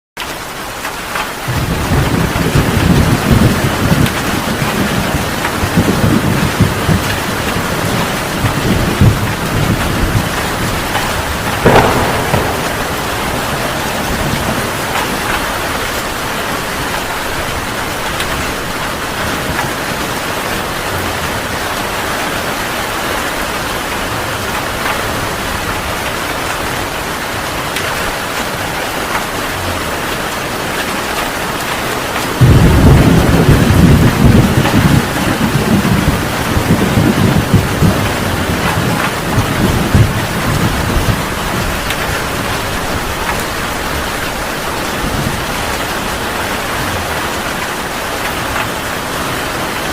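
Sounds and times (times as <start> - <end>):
heavy rain falling: 0.2 - 49.9
low rumble of thunder: 1.5 - 21.8, 32.3 - 46.6
sharp thunder crack: 7.9 - 15.7, 32.4 - 38.8.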